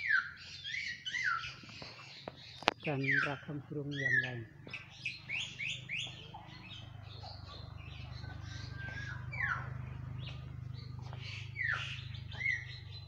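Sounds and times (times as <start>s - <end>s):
caged birds chirping and calling: 0.0s - 13.0s
steady low hum: 3.4s - 13.0s.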